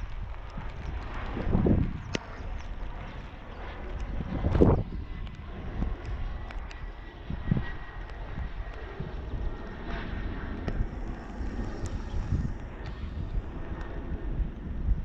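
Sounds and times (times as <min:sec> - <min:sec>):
distant jet engines rumbling: 0:00.0 - 0:15.0
wind buffeting microphone: 0:00.0 - 0:15.0.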